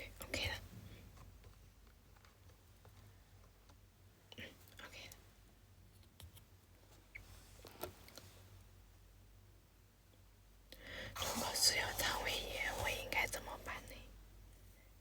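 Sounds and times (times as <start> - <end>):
low room hum: 0.0 - 15.0
soft breathy sounds: 10.7 - 15.0.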